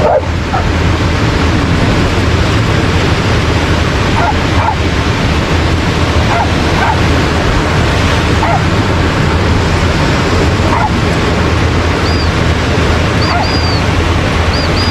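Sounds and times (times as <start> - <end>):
dogs barking and yipping: 0.0 - 0.8, 4.0 - 5.1, 6.1 - 7.4, 8.3 - 8.8, 10.6 - 12.4, 13.0 - 14.9
ocean surf rushing: 0.0 - 14.9.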